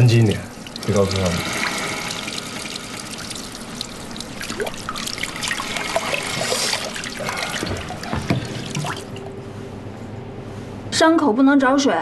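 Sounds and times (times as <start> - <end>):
tap water running into sink: 0.0 - 9.1.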